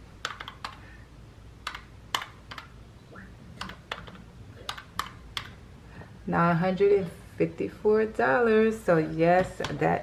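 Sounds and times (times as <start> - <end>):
calculator keys clicking: 0.2 - 0.8, 1.6 - 2.7, 3.6 - 5.6.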